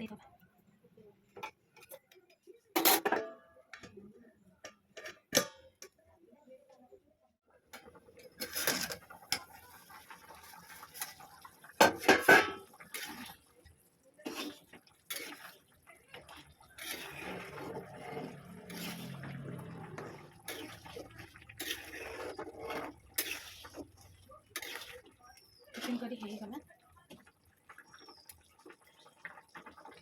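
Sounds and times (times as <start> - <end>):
metal utensils and dishes clinking: 1.4 - 6.0, 7.7 - 13.6, 14.2 - 26.6.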